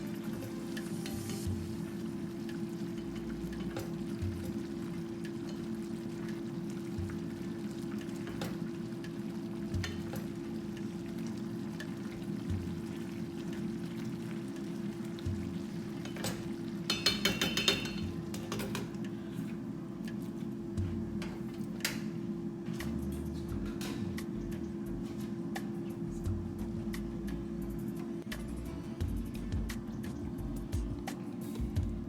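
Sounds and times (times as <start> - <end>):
food sizzling in a pan: 0.0 - 18.5
steady low hum: 0.0 - 32.0.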